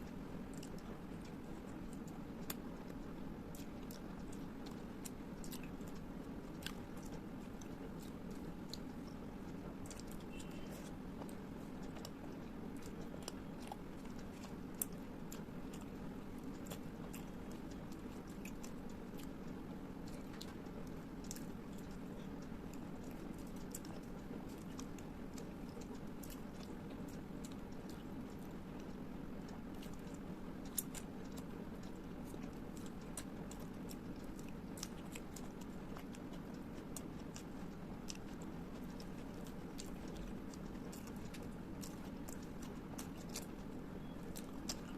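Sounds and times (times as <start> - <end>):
person chewing food: 0.0 - 44.9
steady low hum: 0.0 - 44.9.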